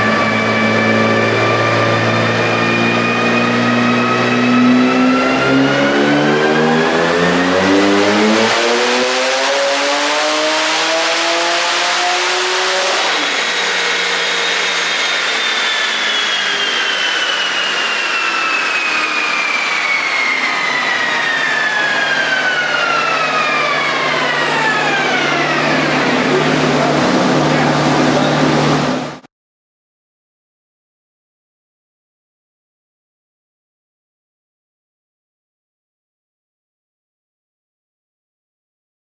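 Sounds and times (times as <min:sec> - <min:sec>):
dyno rollers whining down: 0:00.0 - 0:29.2
engine revving at full throttle: 0:00.0 - 0:29.2.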